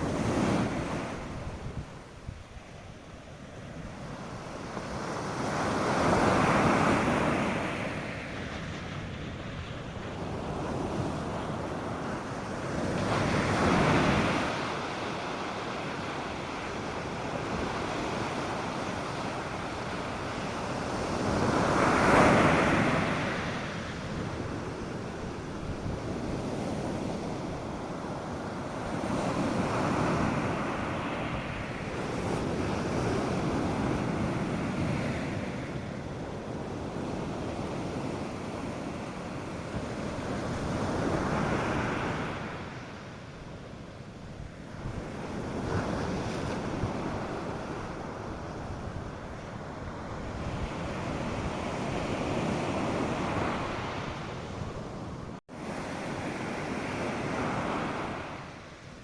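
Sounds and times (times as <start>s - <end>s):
wind on microphone: 0.0s - 59.0s
surf breaking on sandy beach: 4.0s - 43.0s.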